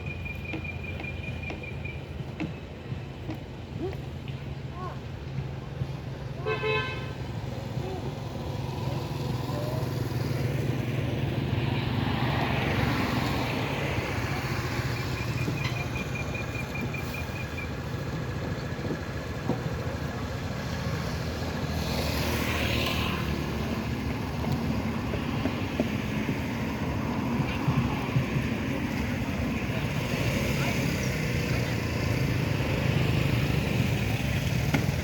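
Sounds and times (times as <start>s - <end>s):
road traffic: 0.0s - 35.0s
vehicles passing: 0.0s - 35.0s.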